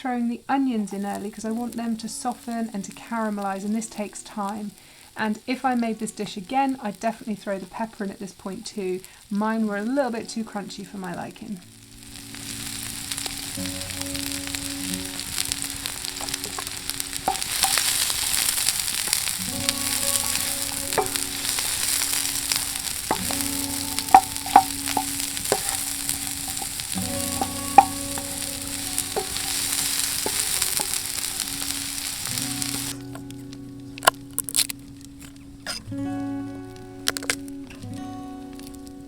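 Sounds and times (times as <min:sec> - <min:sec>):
sausages sizzling in a frying pan: 0:00.3 - 0:35.2
utensil clicking against pan: 0:14.4 - 0:33.3.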